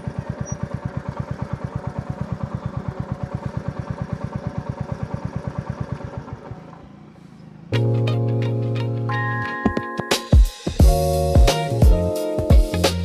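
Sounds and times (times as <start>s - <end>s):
motorcycle engine idling: 0.0s - 7.8s.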